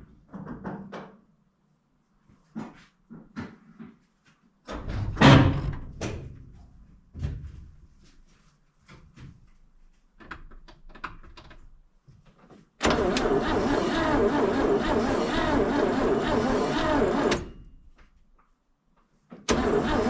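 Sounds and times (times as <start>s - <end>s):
starter cranking engine: 12.8s - 17.6s, 19.5s - 20.0s.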